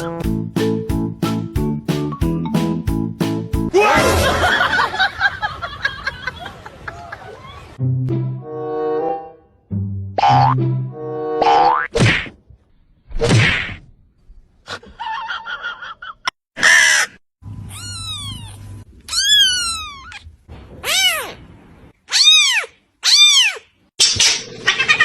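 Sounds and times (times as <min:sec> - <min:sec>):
cats meowing: 0:17.7 - 0:21.4, 0:22.1 - 0:23.6.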